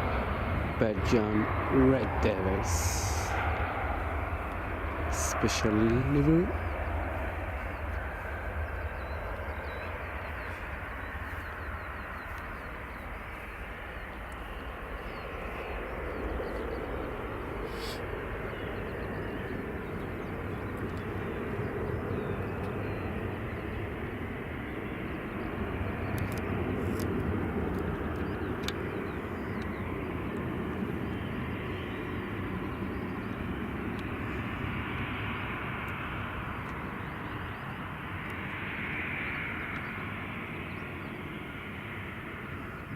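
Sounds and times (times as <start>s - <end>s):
jet engines running: 0.0s - 42.9s.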